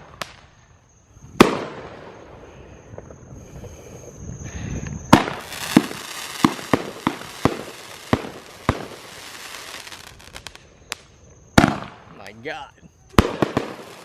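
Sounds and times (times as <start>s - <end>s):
crackling hiss: 0.0s - 14.0s
firework bangs: 1.3s - 2.4s, 5.1s - 12.3s, 13.1s - 14.0s
firework rising rush: 5.1s - 10.6s, 13.2s - 14.0s.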